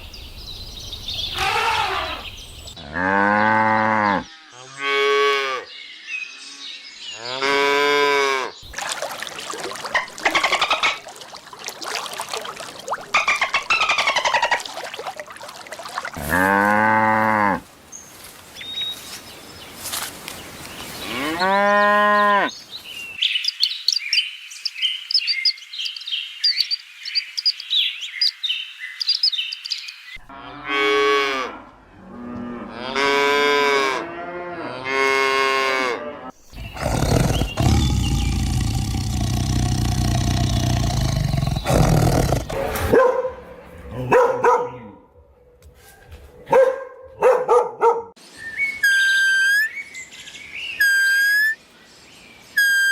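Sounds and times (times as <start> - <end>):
cattle mooing: 2.8 - 5.6, 16.2 - 17.6, 30.3 - 42.9.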